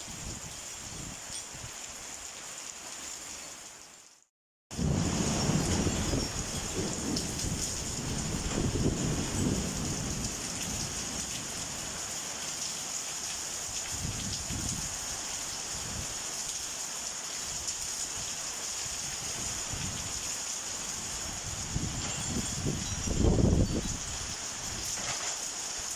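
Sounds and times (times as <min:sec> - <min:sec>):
rain falling steadily: 0:00.0 - 0:25.9
low thunder rumbles: 0:04.7 - 0:11.9.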